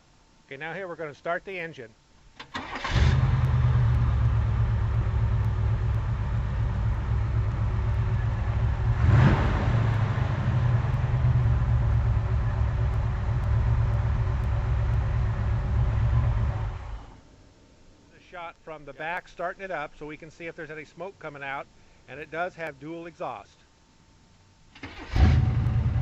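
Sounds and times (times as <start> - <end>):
engine throttle blip: 2.4 - 17.2, 24.8 - 26.0
car engine idling: 2.5 - 17.2, 24.8 - 26.0.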